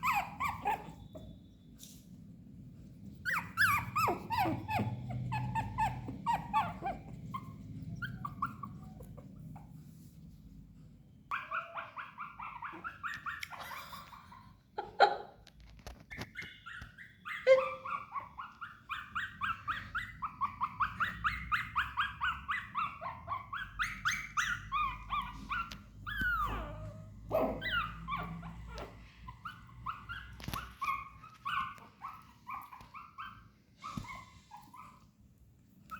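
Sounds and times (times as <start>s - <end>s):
puppy whimpering and crying: 0.0s - 1.4s, 3.1s - 9.8s, 11.3s - 35.2s
puppy yelping: 0.0s - 1.4s, 3.2s - 9.8s, 11.3s - 35.2s.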